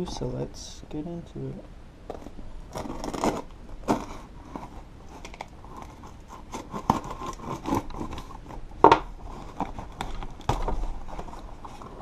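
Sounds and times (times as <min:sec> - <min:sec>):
packaging cutting and tearing: 0:02.7 - 0:08.6
packaging crackle: 0:02.7 - 0:12.0.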